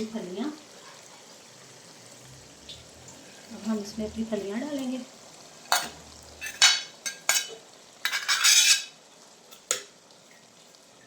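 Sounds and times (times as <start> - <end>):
metal spoon scraping a wok: 5.7 - 9.0.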